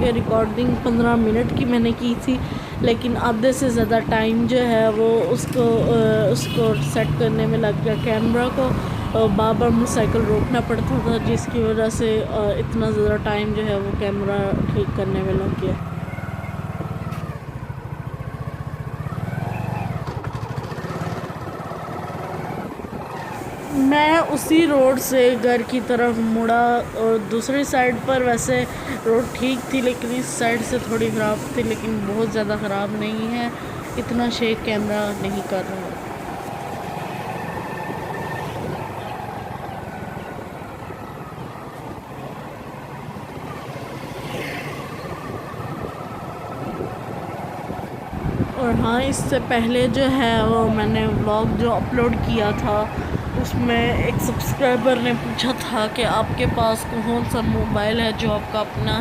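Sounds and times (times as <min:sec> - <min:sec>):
small motorcycle engine running: 0:15.6 - 0:23.4.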